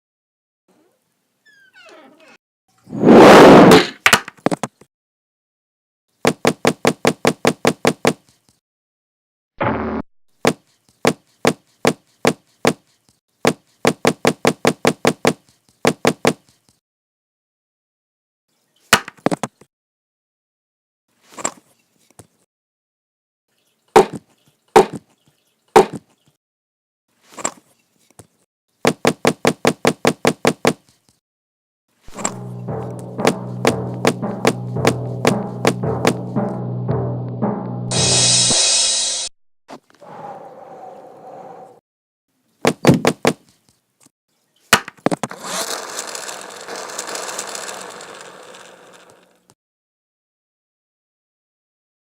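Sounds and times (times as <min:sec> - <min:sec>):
knocks and thuds: 0:32.1 - 0:37.7, 0:42.7 - 0:43.4
music: 0:32.1 - 0:39.3
rattling whirring mechanical noise: 0:45.3 - 0:49.5.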